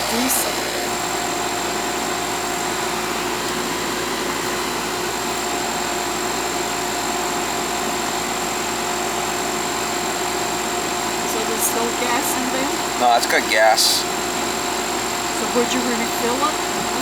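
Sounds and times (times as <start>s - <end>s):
air conditioner unit running: 0.0s - 17.0s.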